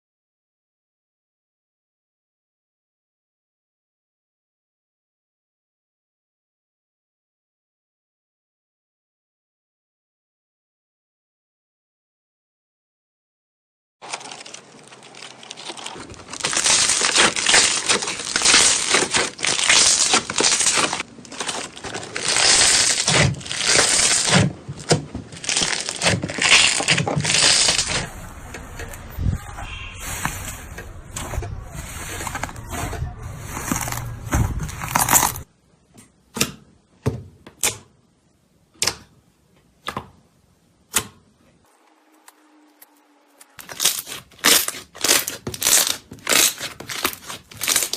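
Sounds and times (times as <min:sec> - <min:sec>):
slime crackling by hand: 0:14.0 - 0:28.1, 0:43.6 - 0:47.9.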